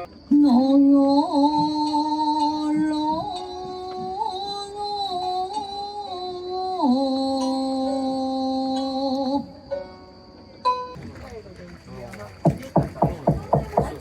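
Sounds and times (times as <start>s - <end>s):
slow singing in long notes: 0.0s - 10.2s.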